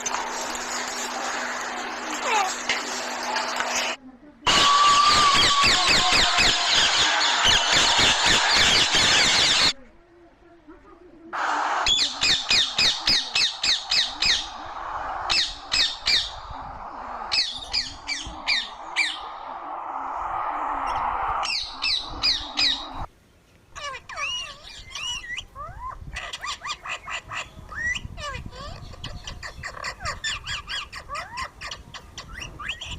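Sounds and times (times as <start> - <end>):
steady hiss: 0.0 - 4.6, 11.4 - 23.1
parrot squawking: 4.5 - 9.7, 11.8 - 16.5, 17.1 - 19.4, 20.9 - 23.1, 23.8 - 32.9
parrot warbling calls: 11.9 - 19.4, 20.8 - 23.1, 23.8 - 32.8.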